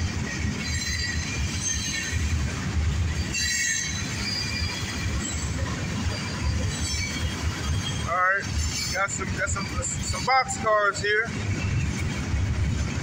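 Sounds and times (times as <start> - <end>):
train cars rumbling past: 0.0 - 13.0
high-pitched wheel squeal: 0.6 - 2.2, 3.2 - 9.0.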